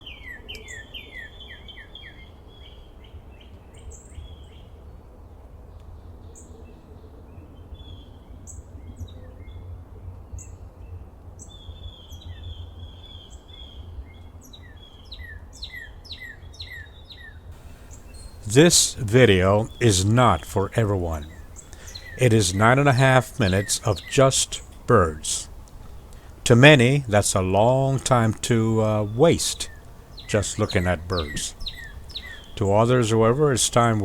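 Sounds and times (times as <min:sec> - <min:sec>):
songbirds chirping: 0:17.6 - 0:34.0.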